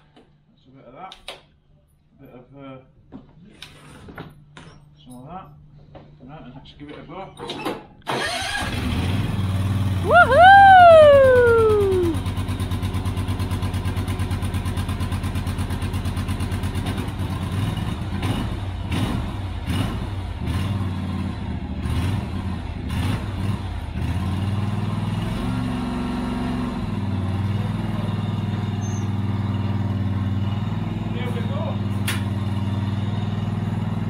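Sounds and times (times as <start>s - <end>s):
ride-on mower engine running: 12.2s - 18.9s, 23.6s - 34.0s.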